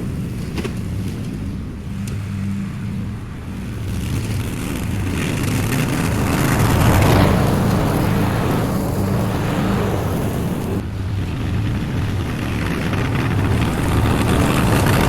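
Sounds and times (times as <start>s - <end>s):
lawn mower cutting grass: 3.6s - 15.0s.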